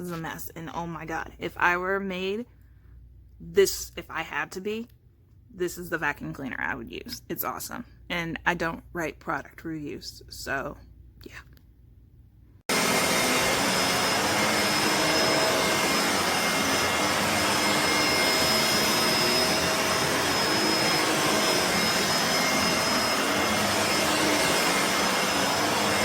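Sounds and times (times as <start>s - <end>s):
upright vacuum running: 12.7s - 26.0s.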